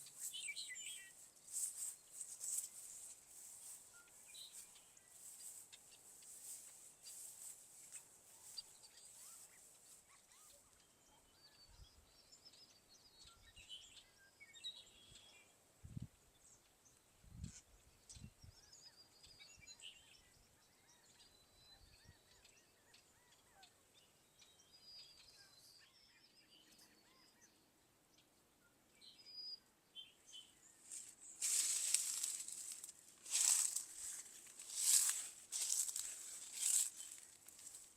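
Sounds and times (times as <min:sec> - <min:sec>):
birds chirping faintly: 0:00.0 - 0:37.9
rustling: 0:01.2 - 0:03.9, 0:30.9 - 0:37.9.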